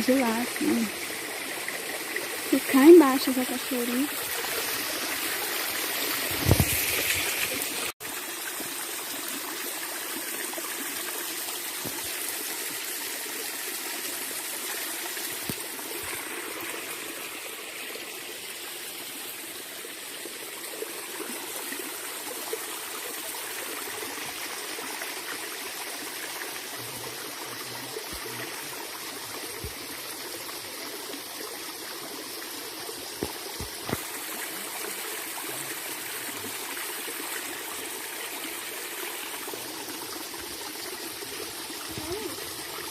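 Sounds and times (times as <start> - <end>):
stream running over rocks: 0.0 - 42.9.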